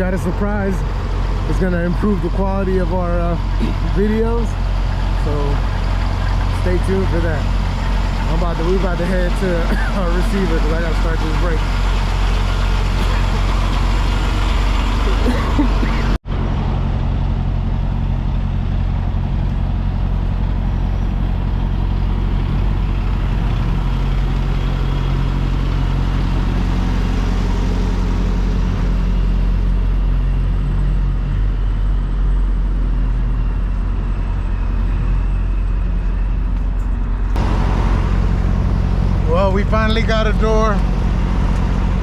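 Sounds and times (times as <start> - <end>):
diesel truck engine running: 0.0 - 42.0.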